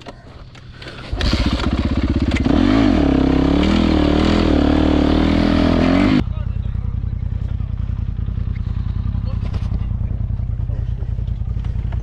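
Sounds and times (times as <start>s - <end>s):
dirt bike engine revving: 1.0s - 6.2s.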